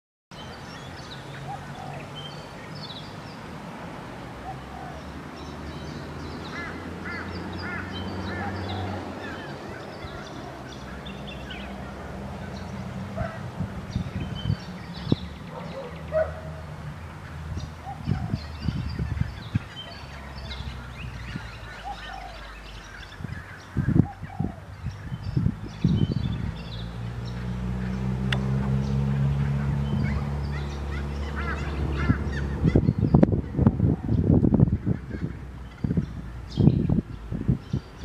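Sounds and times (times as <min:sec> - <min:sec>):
birds chirping and whistling: 0:12.5 - 0:16.5, 0:17.6 - 0:28.0, 0:28.8 - 0:38.0.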